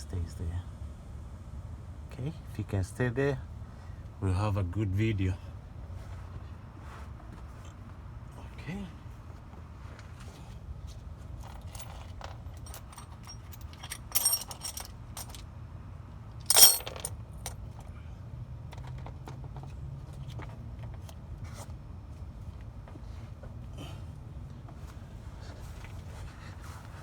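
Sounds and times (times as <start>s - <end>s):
metal clatter: 11.4s - 15.4s, 16.4s - 17.6s
ringing metallic clinks: 12.6s - 15.3s, 16.5s - 17.1s.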